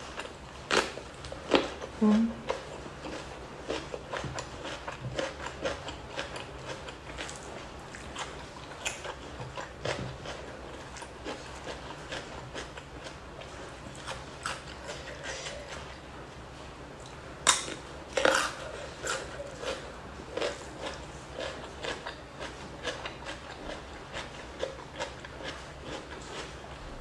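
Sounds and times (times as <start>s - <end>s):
person chewing crunchy food: 0.0s - 16.4s, 17.0s - 27.0s.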